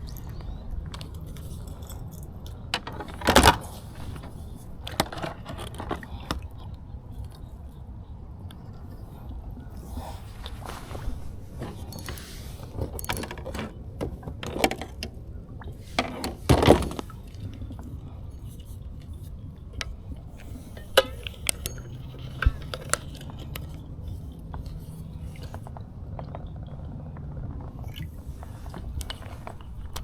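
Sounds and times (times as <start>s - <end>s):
small clicks and clinks: 0.0s - 7.5s, 11.6s - 15.2s, 16.6s - 26.5s.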